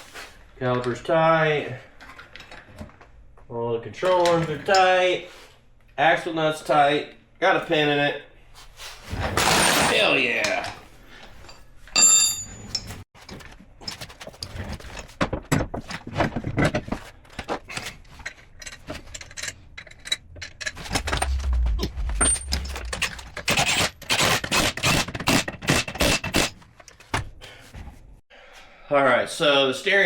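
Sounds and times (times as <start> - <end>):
metal tools clinking and rattling: 11.3 - 13.0
ringing metallic clink: 12.0 - 12.9.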